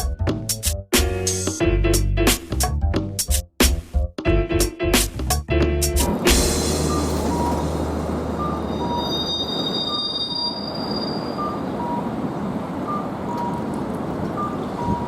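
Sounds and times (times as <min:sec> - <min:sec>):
streetcar wheels squealing: 0:06.0 - 0:15.0
low hum: 0:06.1 - 0:09.7
two-pitch electronic beep: 0:06.7 - 0:12.1.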